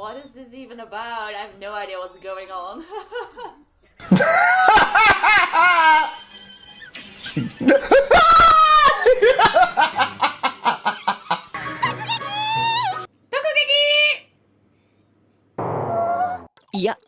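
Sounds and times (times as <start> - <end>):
high-pitched laughter: 4.1 - 13.1.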